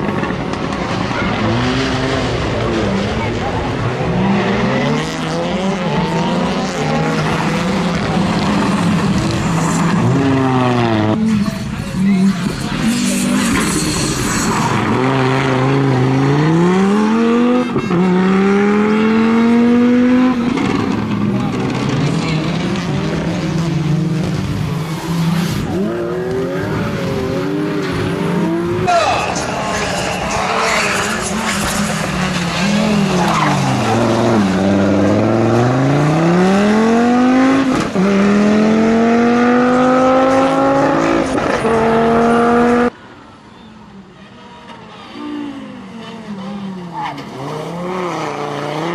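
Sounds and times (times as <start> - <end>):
rally car engine accelerating: 0.0 - 42.9.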